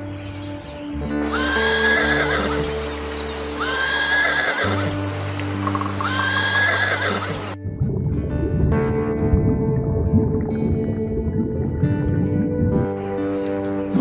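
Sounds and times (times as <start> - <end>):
background music: 0.0 - 14.0
horse whinnying: 1.2 - 2.8, 3.6 - 5.1, 5.8 - 7.6.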